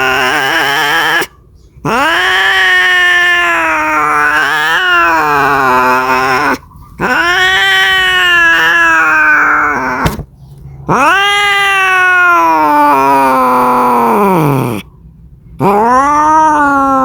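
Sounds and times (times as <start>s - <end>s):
cat yowling: 0.0s - 10.2s, 10.9s - 14.9s, 15.6s - 17.0s.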